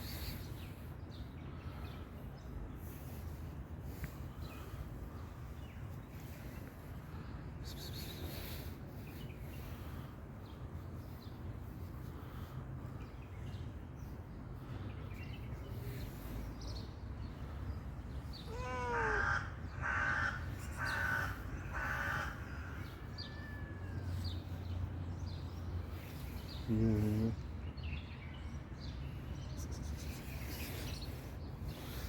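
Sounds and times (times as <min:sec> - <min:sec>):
bird cawing: 0:18.5 - 0:24.0.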